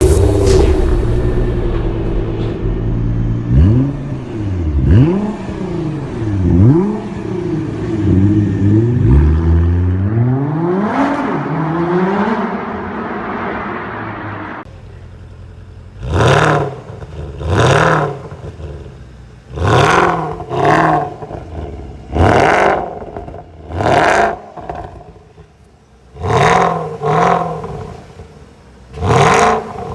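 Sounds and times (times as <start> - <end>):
car engine revving: 0.0 - 29.9.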